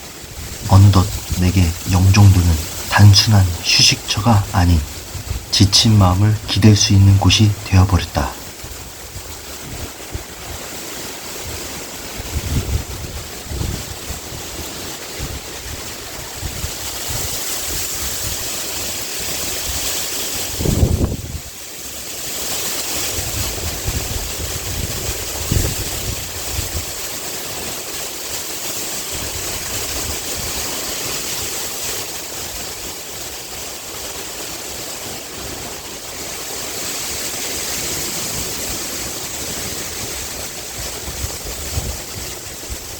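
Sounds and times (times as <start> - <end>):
wind rustling through bamboo: 0.0 - 42.9
wind buffeting microphone: 4.9 - 5.6, 11.4 - 14.6, 20.5 - 21.5.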